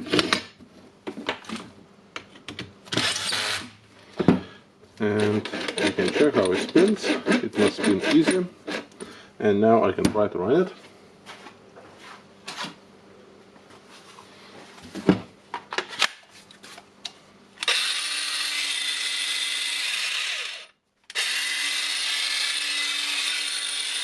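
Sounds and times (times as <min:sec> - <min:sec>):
angle grinder whining: 0:17.6 - 0:24.0.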